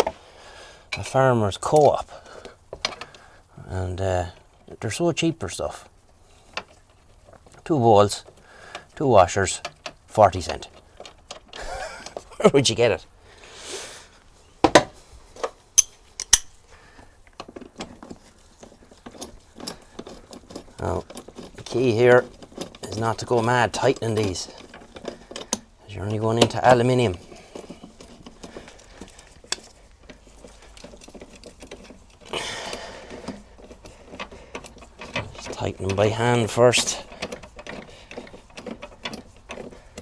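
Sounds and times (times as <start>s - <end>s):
bolts and washers clicking: 14.6s - 16.7s, 17.3s - 40.0s
metal bolts clinking: 15.8s - 16.7s.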